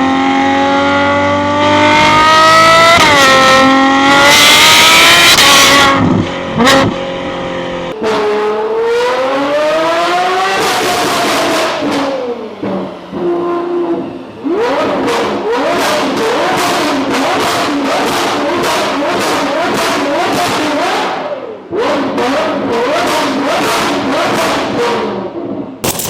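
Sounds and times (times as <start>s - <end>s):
car engine revving hard: 0.0s - 7.0s.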